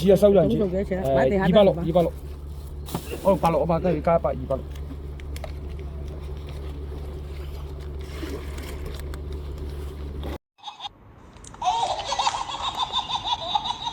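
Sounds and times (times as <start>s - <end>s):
low engine drone: 0.0s - 10.4s.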